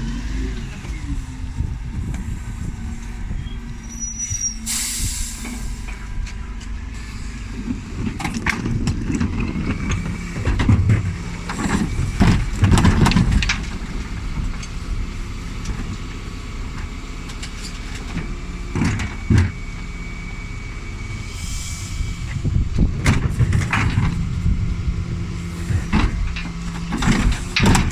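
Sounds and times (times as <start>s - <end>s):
diesel engine running: 0.0s - 27.9s
heavy clunks and knocks: 5.5s - 14.7s, 22.8s - 24.6s, 25.7s - 27.9s.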